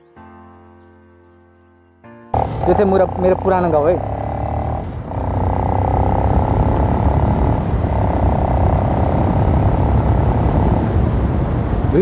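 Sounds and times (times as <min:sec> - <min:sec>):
motorcycle engine running: 0:02.4 - 0:12.0
wind rumbling on microphone: 0:02.4 - 0:12.0.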